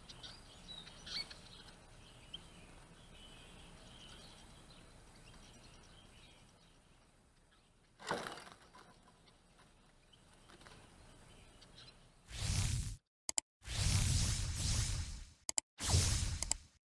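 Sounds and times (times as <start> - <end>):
faint bird chirps: 0.0 - 8.0, 9.2 - 12.7
bird wings fluttering: 12.3 - 13.0, 13.7 - 16.7.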